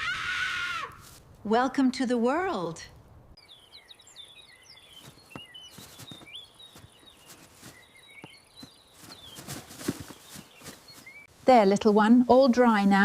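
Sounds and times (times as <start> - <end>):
small birds chirping: 3.4 - 13.0.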